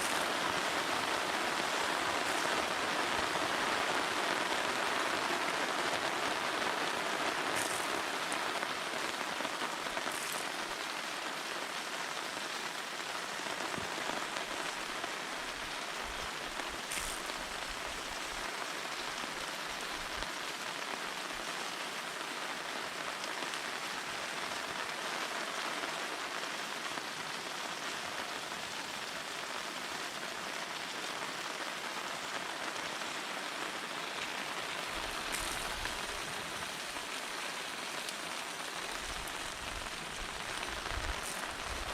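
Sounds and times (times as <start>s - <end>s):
steady rain hiss: 0.0s - 41.9s
raindrop ticks: 7.5s - 9.2s.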